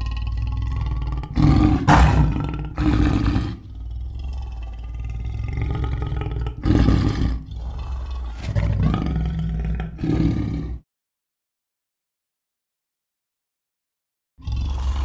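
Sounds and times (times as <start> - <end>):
big cat roaring: 0.0 - 10.8, 14.4 - 15.0
low growling: 0.0 - 10.8, 14.4 - 15.0.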